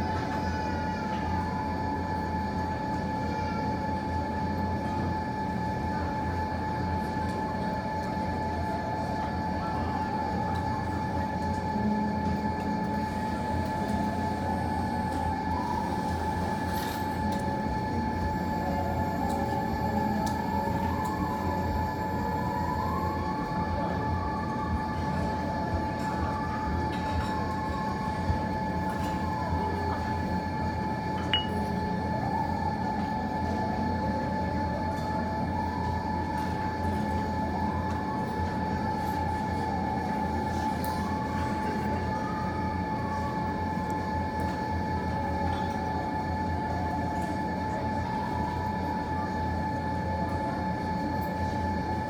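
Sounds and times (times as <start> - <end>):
mechanical hum with high whine: 0.0 - 52.0.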